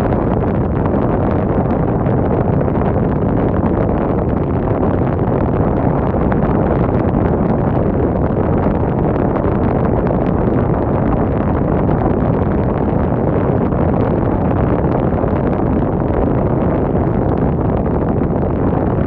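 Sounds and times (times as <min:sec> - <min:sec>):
wind blowing across microphone: 0:00.0 - 0:19.0.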